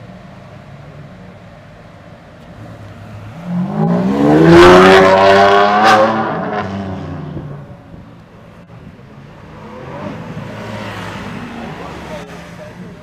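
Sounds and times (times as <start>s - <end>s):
car engine revving: 2.4s - 8.0s, 9.1s - 13.0s.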